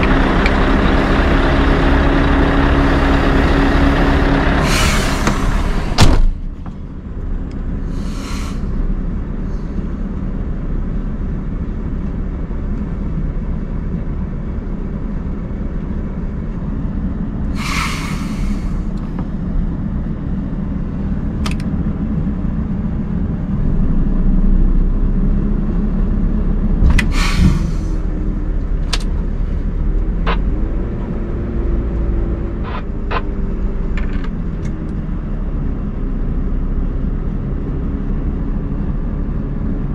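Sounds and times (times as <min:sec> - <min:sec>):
diesel truck engine running: 0:00.0 - 0:39.9
air release hisses: 0:04.6 - 0:05.7, 0:07.9 - 0:08.7, 0:17.6 - 0:18.9, 0:27.0 - 0:28.0.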